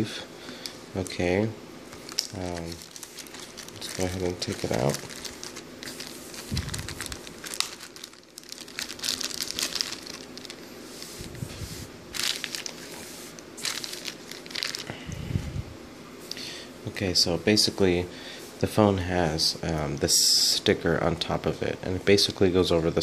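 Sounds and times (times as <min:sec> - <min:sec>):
plastic sleeve crinkling: 0:01.9 - 0:15.1.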